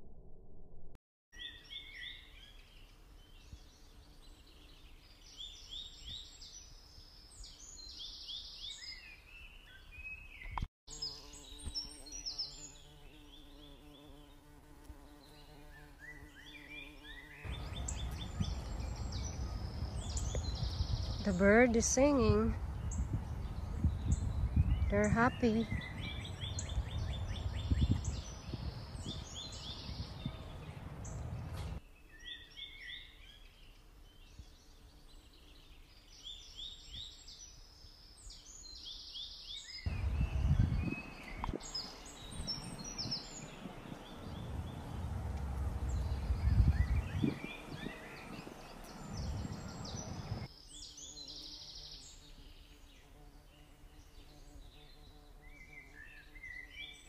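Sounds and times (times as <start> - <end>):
songbirds singing and chirping: 1.4 - 57.0
low rumbling noise: 43.5 - 47.4.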